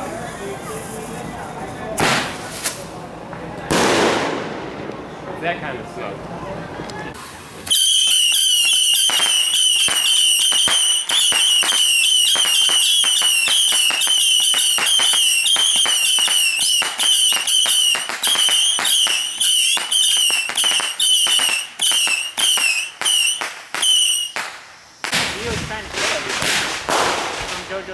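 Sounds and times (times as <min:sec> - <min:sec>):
firework crackling pops: 0:02.0 - 0:05.1, 0:07.2 - 0:27.9
shrill firework whistle: 0:07.6 - 0:24.6.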